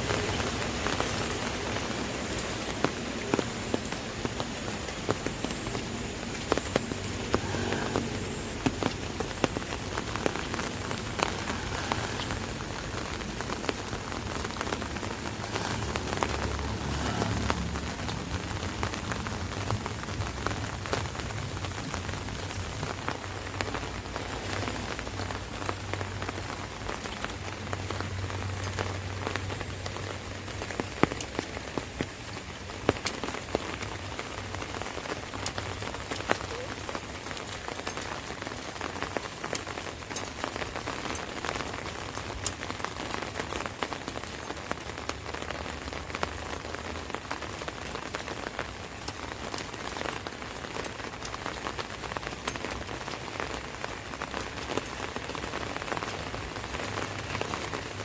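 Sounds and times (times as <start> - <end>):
rain hissing on umbrella: 0.0 - 58.0
raindrop taps: 0.0 - 58.0
low rumble: 5.8 - 26.4.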